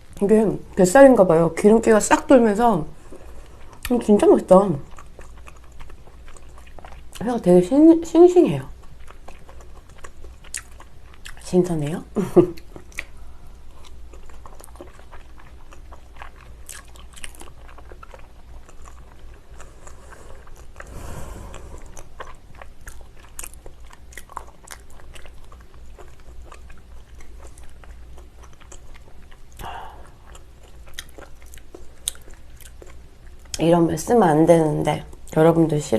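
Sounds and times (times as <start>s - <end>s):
close chewing wet smacks: 3.1s - 7.3s, 8.7s - 11.5s, 12.5s - 20.9s, 21.5s - 33.7s.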